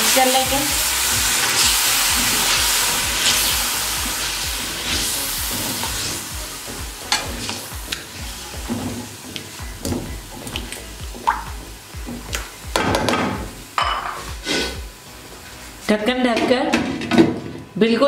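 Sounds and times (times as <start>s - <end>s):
food sizzling in hot oil: 0.0s - 16.2s
spatula scraping a wok: 14.2s - 14.8s.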